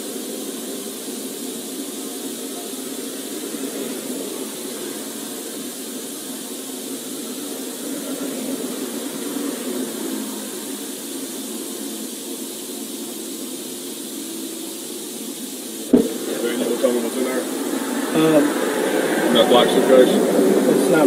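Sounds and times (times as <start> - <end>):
highway traffic: 15.7 - 21.0.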